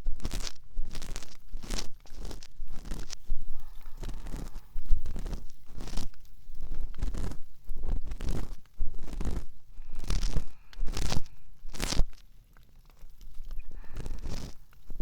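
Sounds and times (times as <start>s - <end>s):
ear pick scraping inside ear: 0.0s - 12.2s, 13.2s - 15.0s.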